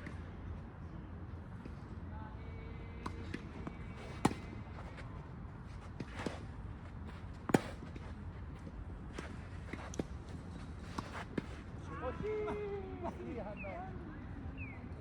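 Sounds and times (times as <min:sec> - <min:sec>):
tennis ball bouncing: 0:03.0 - 0:05.2, 0:05.8 - 0:11.5
racket hitting tennis ball: 0:04.0 - 0:05.0, 0:05.8 - 0:08.2.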